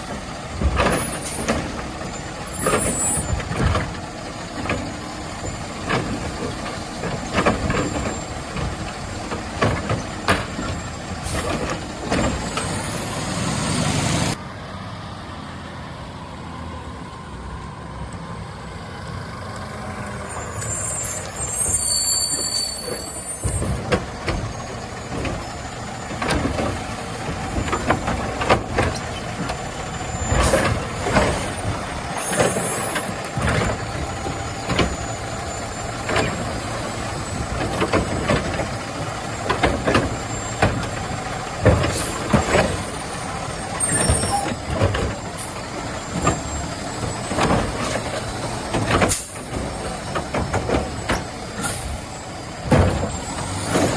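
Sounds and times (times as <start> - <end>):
carts knocking and clanking: 0.0 - 14.4, 21.4 - 53.9
garbage truck running: 0.0 - 53.9.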